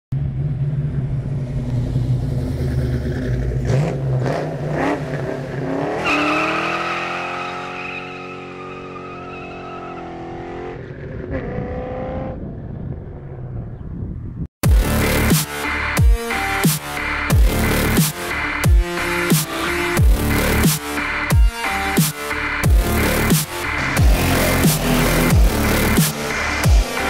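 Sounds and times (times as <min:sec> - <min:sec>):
car engine revving and accelerating: 0:00.2 - 0:12.8, 0:19.0 - 0:27.0.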